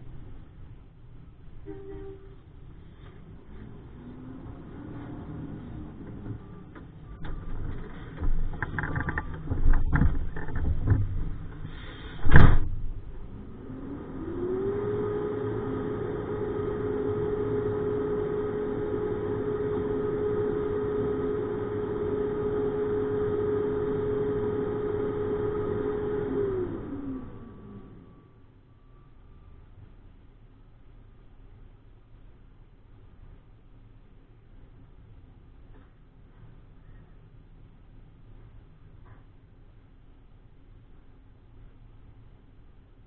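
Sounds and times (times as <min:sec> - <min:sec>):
truck hydraulic hum: 0:11.5 - 0:29.6
loud bang: 0:12.1 - 0:13.1.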